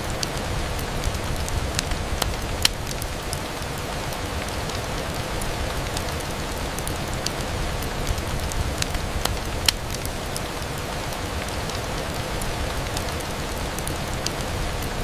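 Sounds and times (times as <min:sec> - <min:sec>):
rain on window glass: 0:00.0 - 0:15.0.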